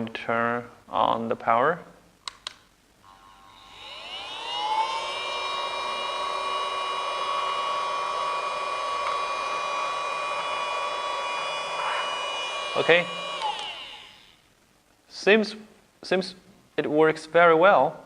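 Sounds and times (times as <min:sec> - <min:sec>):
small vacuum motor whine: 0:03.1 - 0:14.4.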